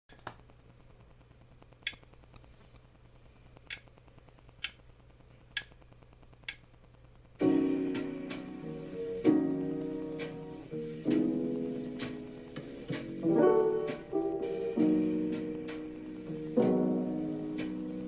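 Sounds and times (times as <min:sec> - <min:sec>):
jazz piano chord: 0:07.4 - 0:18.0.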